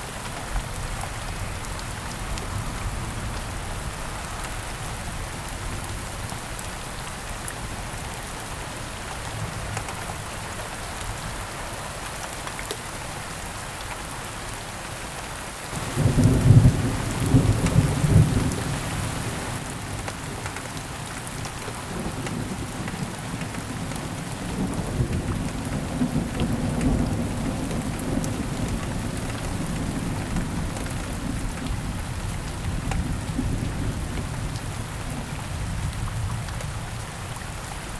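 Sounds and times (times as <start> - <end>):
steady rain falling: 0.0 - 37.9.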